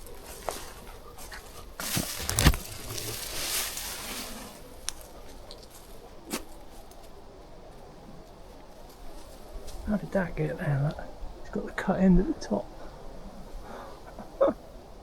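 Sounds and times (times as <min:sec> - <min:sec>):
footsteps through undergrowth: 0:00.0 - 0:07.1
twigs cracking: 0:01.8 - 0:07.2.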